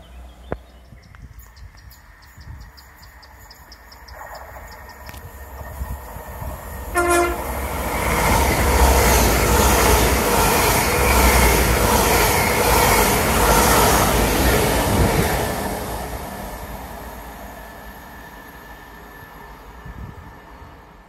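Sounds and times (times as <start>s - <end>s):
train passing with low drone: 0.0s - 21.0s
clatter of train wheels: 1.1s - 16.6s
train horn blast: 6.9s - 7.7s.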